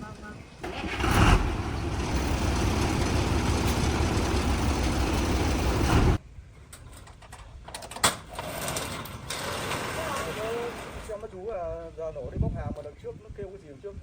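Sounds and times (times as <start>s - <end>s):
truck engine running: 0.6s - 6.2s.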